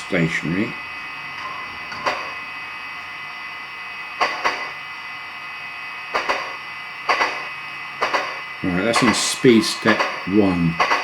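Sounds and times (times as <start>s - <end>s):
steady background hiss: 0.0s - 11.0s
steam locomotive exhaust chuffs: 6.1s - 11.0s.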